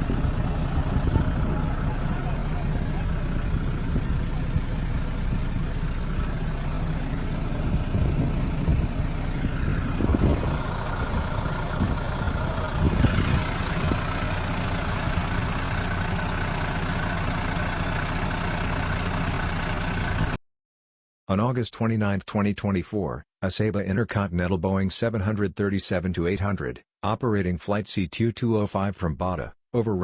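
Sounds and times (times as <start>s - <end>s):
short rising whine: 0.0s - 17.1s
engine low rumble: 0.0s - 20.4s.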